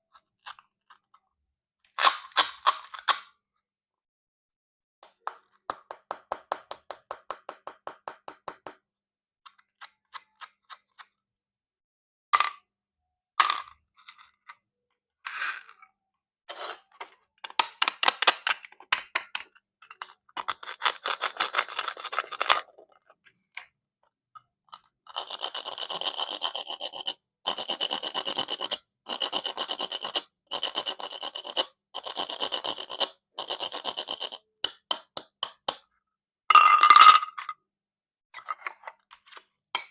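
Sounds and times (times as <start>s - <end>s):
knife scraping plastic: 16.5s - 17.2s, 19.8s - 23.1s, 24.7s - 34.9s.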